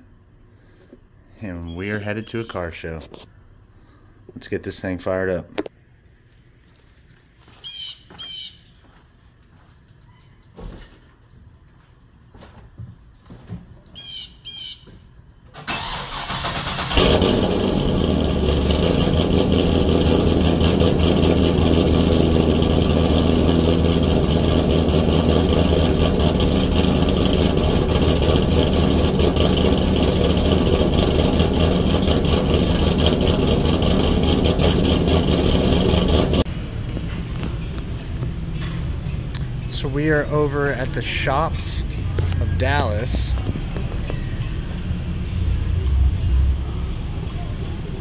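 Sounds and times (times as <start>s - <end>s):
starter cranking: 15.6s - 36.4s
car engine loud idle: 15.8s - 36.5s.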